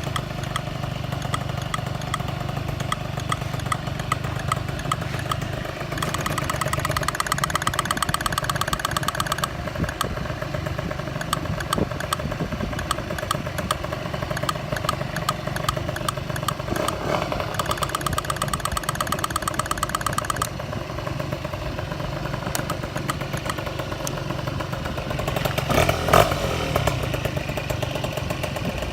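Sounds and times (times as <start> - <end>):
fast even ticking: 0.0 - 10.2, 11.0 - 20.6, 22.3 - 24.2
scooter engine idling: 0.0 - 28.9.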